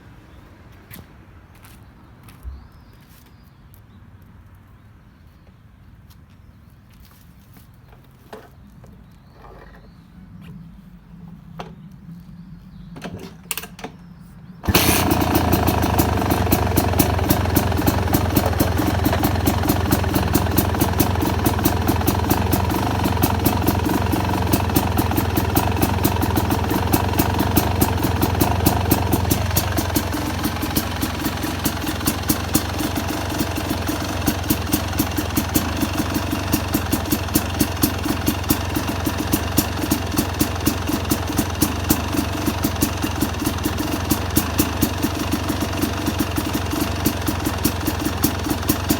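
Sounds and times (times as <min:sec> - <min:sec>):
two-stroke engine idling: 0:14.6 - 0:48.9.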